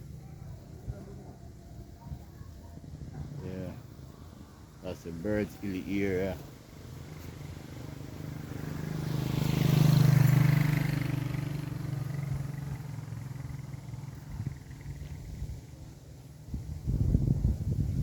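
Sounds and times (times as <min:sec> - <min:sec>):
vehicle driving past: 0:06.7 - 0:15.4.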